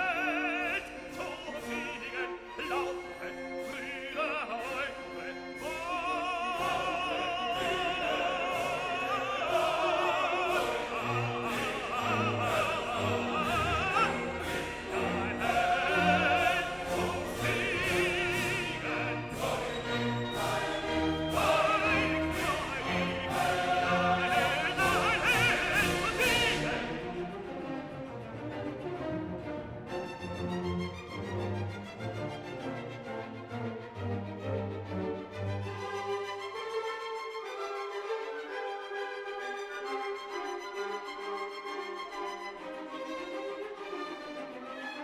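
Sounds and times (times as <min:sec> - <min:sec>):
operatic singing: 0:00.0 - 0:34.2
instrumental accompaniment: 0:00.8 - 0:32.1.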